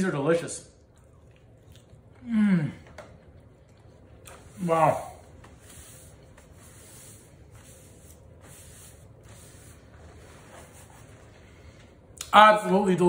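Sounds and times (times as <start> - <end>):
man chewing food: 0.8 - 4.5.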